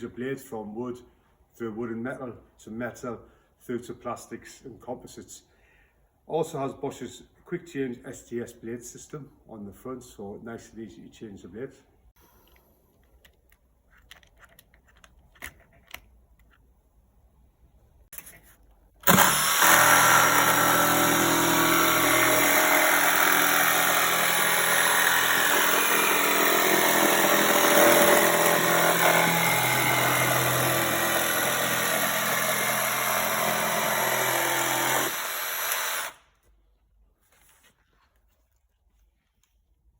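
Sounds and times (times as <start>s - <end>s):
jigsaw sawing through workpiece: 19.0s - 36.2s.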